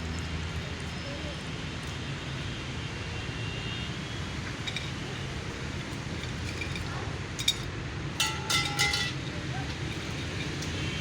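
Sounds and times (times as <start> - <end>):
sharp clinks: 4.6 - 10.7.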